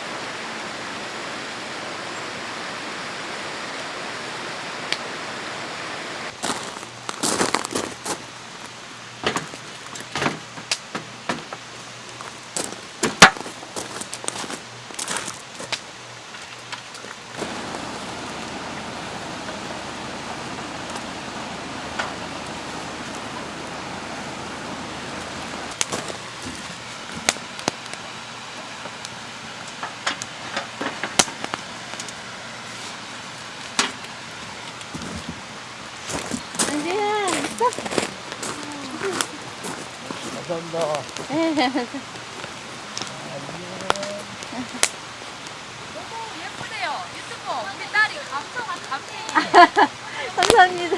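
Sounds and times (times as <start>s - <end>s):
faint steady hiss: 0.0s - 50.9s
running water: 16.9s - 28.3s, 32.5s - 50.9s.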